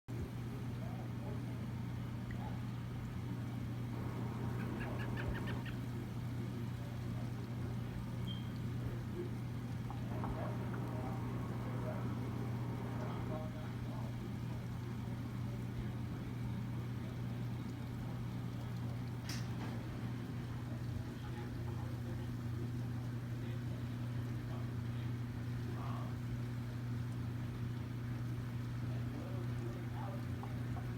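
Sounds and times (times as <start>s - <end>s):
steady low hum: 0.1s - 30.9s
bird chirping: 4.0s - 5.9s.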